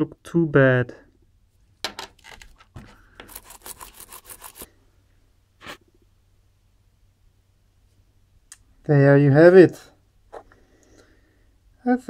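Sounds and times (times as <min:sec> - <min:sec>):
cloth rubbing on faceplate: 0:02.8 - 0:04.7.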